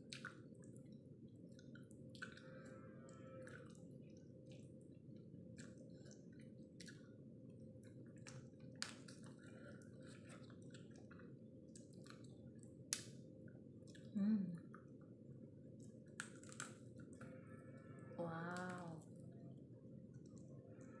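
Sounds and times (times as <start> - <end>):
low room hum: 0.0 - 21.0
wet chewing and sucking: 4.4 - 13.1.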